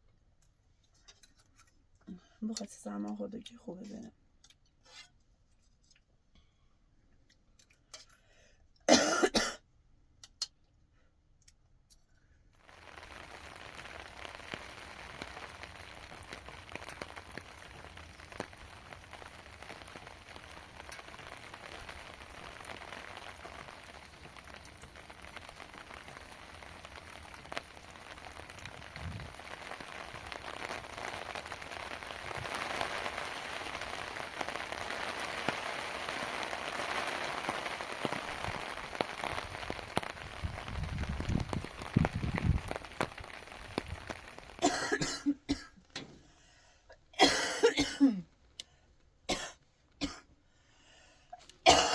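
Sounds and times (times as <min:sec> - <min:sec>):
person coughing: 0:08.9 - 0:09.6, 0:44.6 - 0:45.7, 0:47.2 - 0:48.3, 0:51.6 - 0:51.9
raindrop ticks: 0:11.4 - 0:46.5
steady rain: 0:12.6 - 0:48.3, 0:50.8 - 0:51.9.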